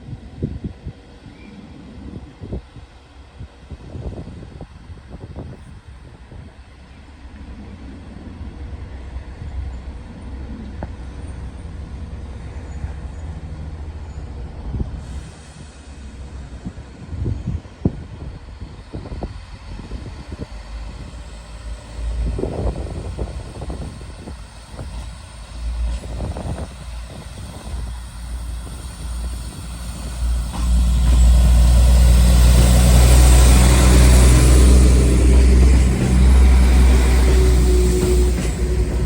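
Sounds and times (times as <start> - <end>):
diesel train engines droning: 0.0 - 39.0
diesel train idling: 18.1 - 39.0.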